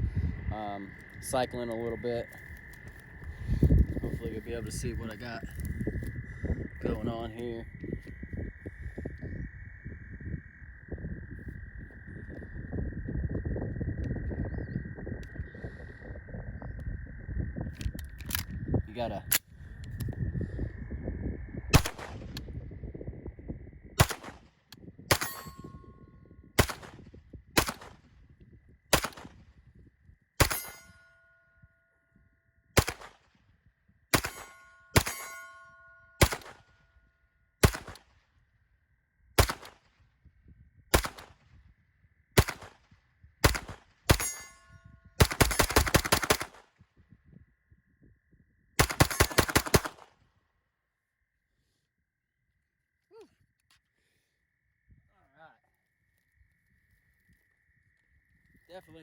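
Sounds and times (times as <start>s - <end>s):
gunshots: 21.7s - 22.4s, 24.0s - 24.4s, 25.1s - 25.6s, 26.6s - 27.0s, 27.6s - 28.0s, 28.9s - 29.4s, 30.4s - 30.9s, 32.8s - 33.3s, 34.1s - 35.6s, 36.2s - 36.6s, 37.6s - 38.1s, 39.4s - 39.9s, 40.9s - 41.4s, 42.4s - 42.8s, 43.4s - 44.4s, 45.2s - 46.6s, 48.8s - 50.1s
metallic ring: 25.2s - 26.0s, 30.5s - 31.7s, 34.3s - 36.2s, 44.2s - 45.1s
rapid gunfire: 34.1s - 35.2s, 37.6s - 38.0s, 45.2s - 46.6s, 48.8s - 50.0s.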